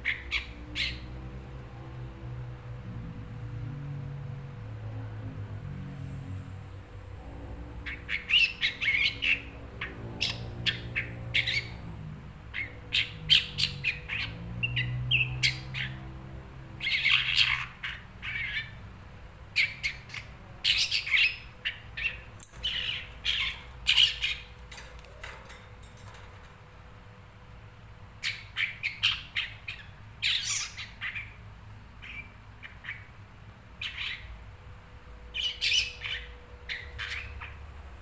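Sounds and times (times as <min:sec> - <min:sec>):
shrike harsh chattering calls: 0:19.6 - 0:26.5.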